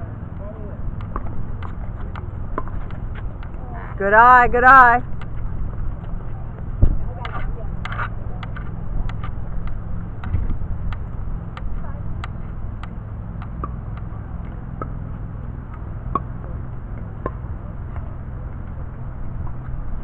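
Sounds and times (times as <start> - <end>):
steady low rumble: 0.0 - 20.0
ball bouncing on court: 1.0 - 3.5.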